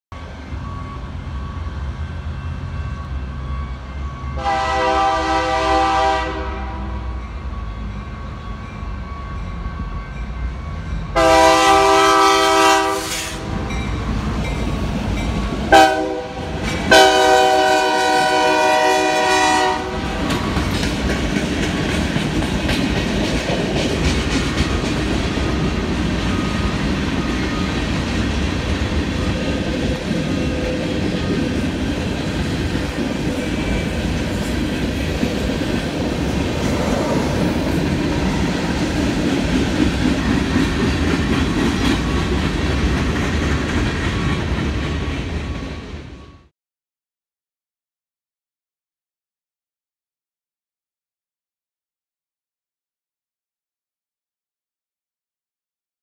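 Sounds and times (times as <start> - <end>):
train horn blasts: 0.6 - 13.8, 15.7 - 20.5
train wheels clattering on rail: 13.2 - 17.2, 20.0 - 46.2.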